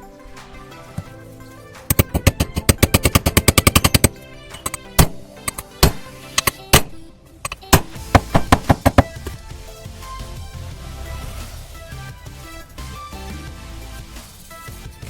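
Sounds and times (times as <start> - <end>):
background music: 0.0 - 15.0
sharp knocks: 1.9 - 9.3.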